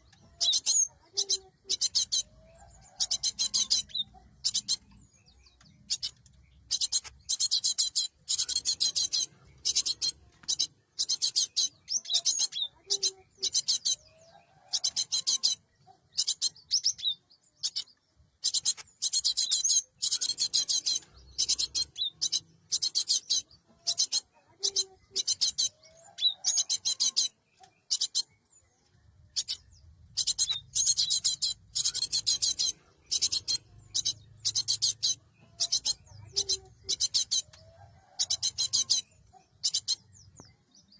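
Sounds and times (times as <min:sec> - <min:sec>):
bird calling in harsh chatter: 0:00.0 - 0:28.4, 0:29.3 - 0:40.9.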